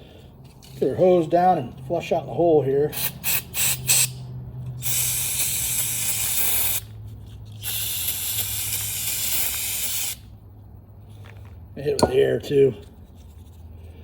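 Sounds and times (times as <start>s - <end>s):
aerosol spray: 7.6s - 10.2s.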